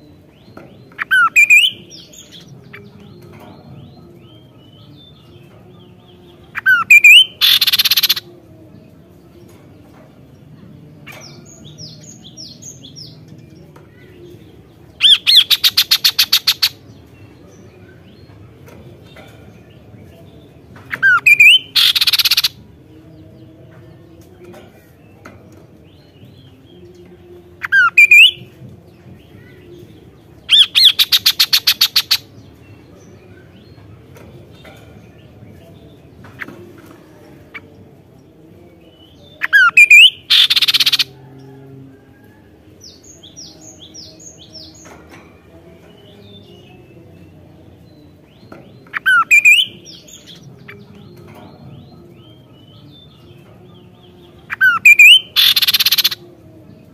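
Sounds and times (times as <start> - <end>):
songbird rattling trill and whistles: 6.6 - 8.2, 15.0 - 16.8, 21.0 - 22.5, 27.6 - 28.4, 30.5 - 32.2, 39.5 - 41.1, 48.9 - 49.8, 54.5 - 56.2.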